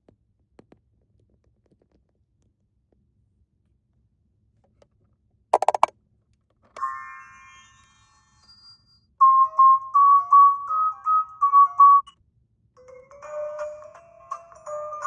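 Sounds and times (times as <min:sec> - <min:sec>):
electronic beeping tune: 0:05.6 - 0:05.9
quick clicks: 0:05.6 - 0:05.9.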